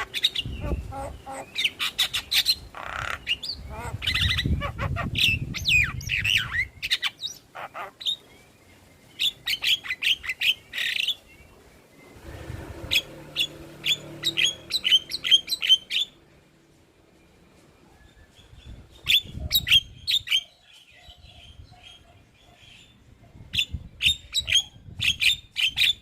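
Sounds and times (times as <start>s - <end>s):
myna squawks and chattering: 0.0s - 8.2s.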